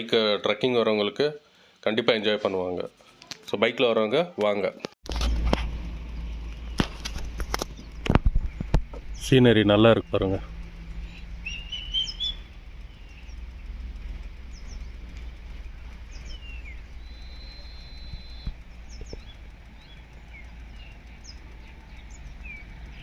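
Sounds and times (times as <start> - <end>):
steady low rumble: 5.1 - 23.0
birds chirping and whistling: 6.1 - 23.0.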